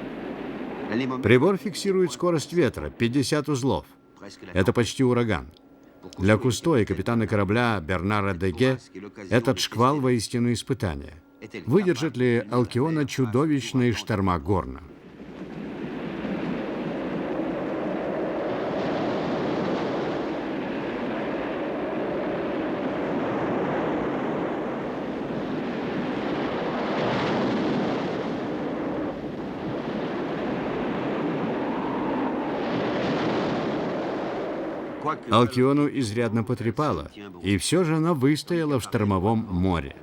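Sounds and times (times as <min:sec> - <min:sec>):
heavy seas: 0:00.0 - 0:04.5, 0:11.2 - 0:40.0
storm wind rushing: 0:15.0 - 0:35.4.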